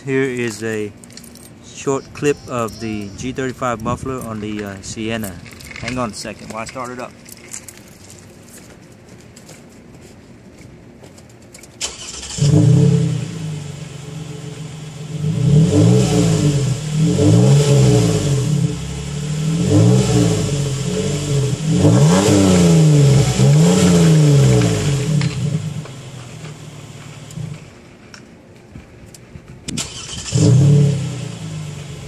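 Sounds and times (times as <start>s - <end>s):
car engine starting and revving: 11.8s - 27.7s, 29.7s - 32.0s.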